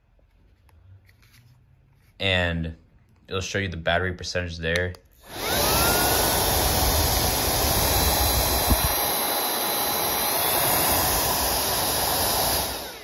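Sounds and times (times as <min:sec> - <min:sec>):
air duster fan motor rushing: 0:05.2 - 0:13.0.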